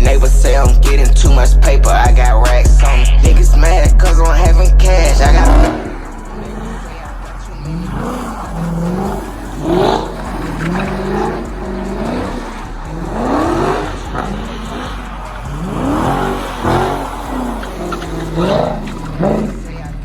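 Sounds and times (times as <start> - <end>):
car engine revving hard: 0.0 - 20.0.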